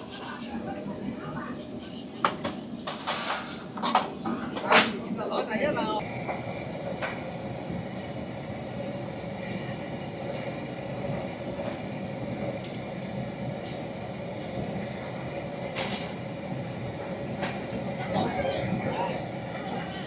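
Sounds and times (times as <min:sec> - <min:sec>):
machinery hiss and rumble: 0:06.0 - 0:20.0.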